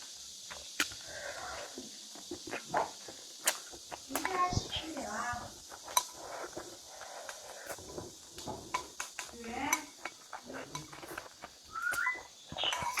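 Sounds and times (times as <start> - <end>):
cutlery and dishes clinking: 8.4 - 13.0.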